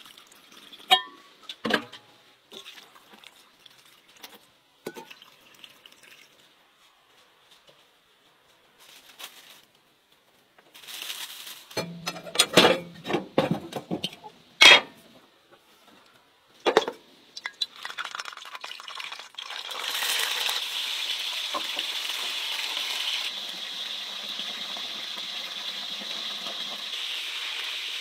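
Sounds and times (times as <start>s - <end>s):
peppers sizzling in a frying pan: 17.4s - 28.0s.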